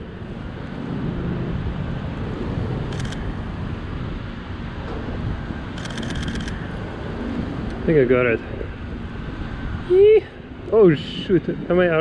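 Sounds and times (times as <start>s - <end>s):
city street traffic rumble: 0.0s - 12.0s
camera shutter clicks: 2.9s - 3.2s, 5.8s - 6.6s.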